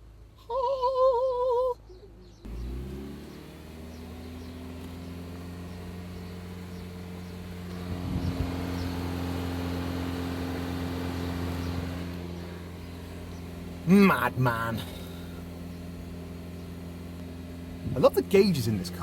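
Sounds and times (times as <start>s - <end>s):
car engine running: 1.9s - 19.0s.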